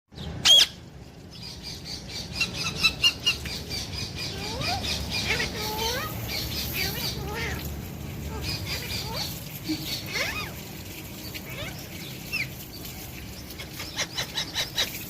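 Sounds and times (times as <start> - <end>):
parakeet squawking: 0.4 - 0.8, 2.2 - 10.7, 11.4 - 12.6.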